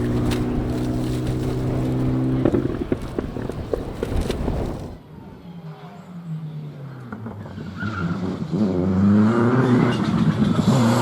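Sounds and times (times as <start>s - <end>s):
rally car engine at high revs: 0.0s - 3.6s, 7.1s - 11.0s
exhaust pops and cracks: 0.0s - 5.0s.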